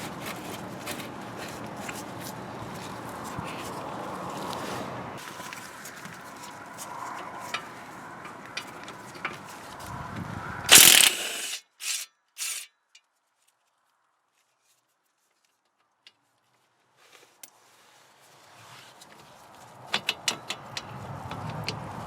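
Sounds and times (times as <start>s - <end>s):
power tool bursts: 10.7s - 12.6s.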